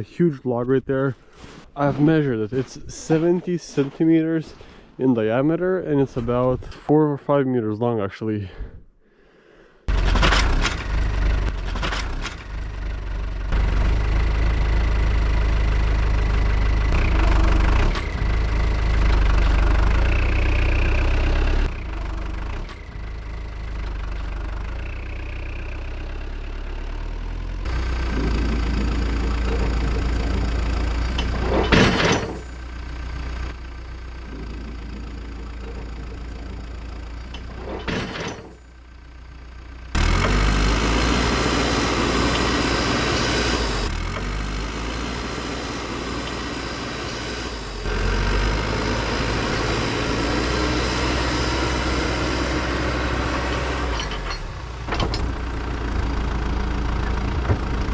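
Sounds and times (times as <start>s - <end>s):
loader diesel engine under load: 0.0s - 7.1s, 9.8s - 57.9s.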